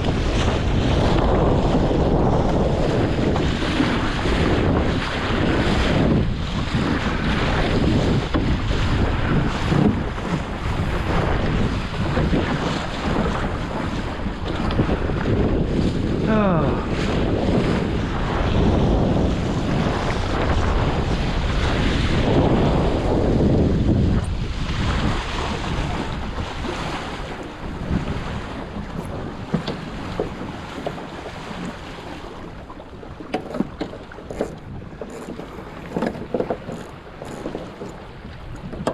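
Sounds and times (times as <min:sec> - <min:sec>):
water rushing along hull: 0:00.0 - 0:38.9
wind buffeting microphone: 0:00.0 - 0:38.9
knocks on hull: 0:27.8 - 0:31.8, 0:33.2 - 0:38.0.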